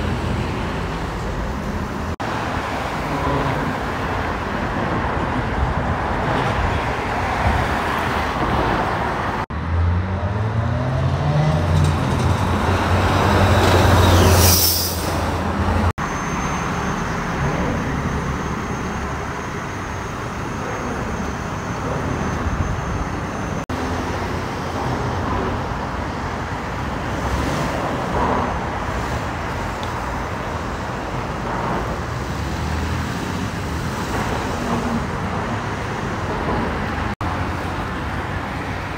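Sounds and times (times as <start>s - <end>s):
road traffic passing: 0.0s - 38.9s.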